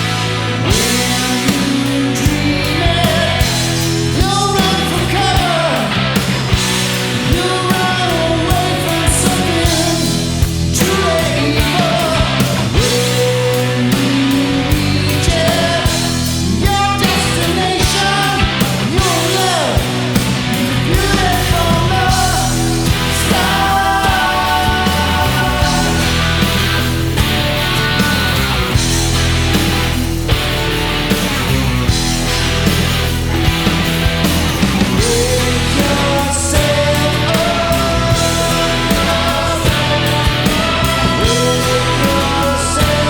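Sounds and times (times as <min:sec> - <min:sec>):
bass notes: 0:00.0 - 0:43.0
bending lead guitar line: 0:00.0 - 0:43.0
drum beat: 0:14.0 - 0:43.0.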